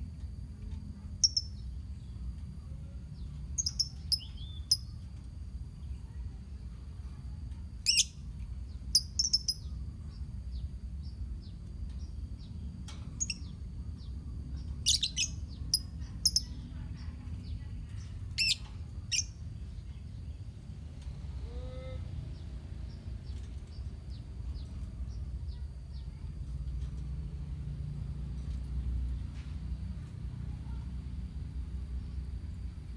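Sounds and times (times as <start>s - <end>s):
birds chattering: 3.2s - 5.0s, 7.8s - 20.6s
lovebirds chirping shrilly: 14.8s - 16.5s, 18.4s - 19.3s.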